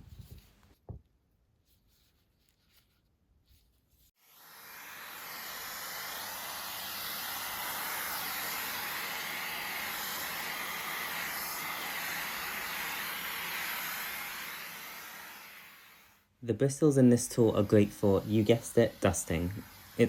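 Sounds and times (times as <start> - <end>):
vacuum cleaner running: 4.2 - 16.2, 17.1 - 20.0.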